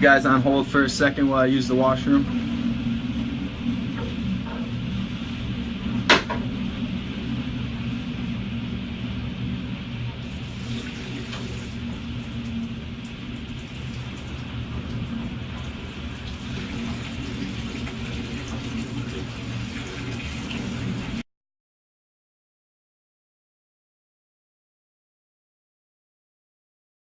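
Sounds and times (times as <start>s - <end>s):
low hum: 0.0s - 21.2s
rushing water: 10.3s - 21.2s.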